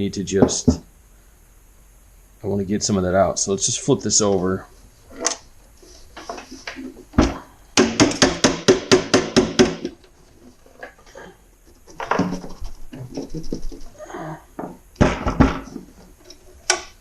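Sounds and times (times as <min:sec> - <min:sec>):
knocking on garage door opener: 0:07.8 - 0:10.0.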